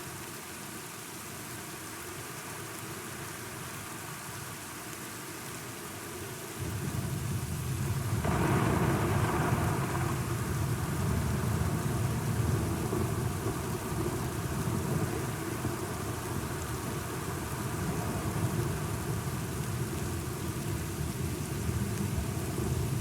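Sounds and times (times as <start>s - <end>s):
steady rainfall: 0.0s - 23.0s
thunder rolling: 6.6s - 16.8s.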